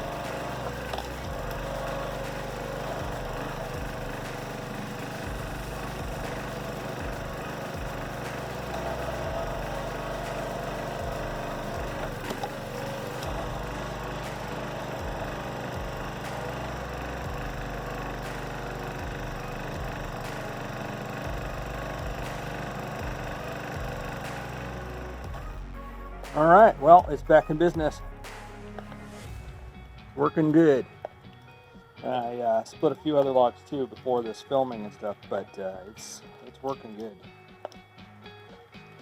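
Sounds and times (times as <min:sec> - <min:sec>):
small gasoline engine running: 0:00.0 - 0:28.4.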